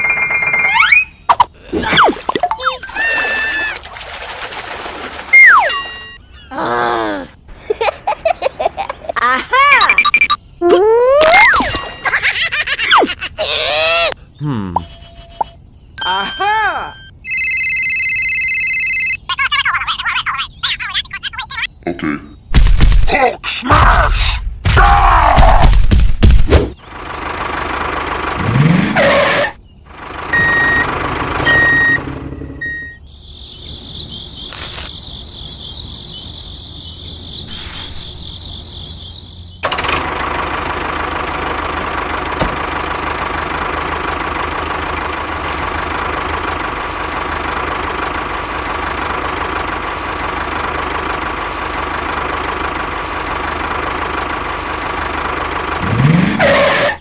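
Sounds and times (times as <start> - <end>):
short beeps: 30.4 - 33.0
crickets chirping: 33.0 - 39.6.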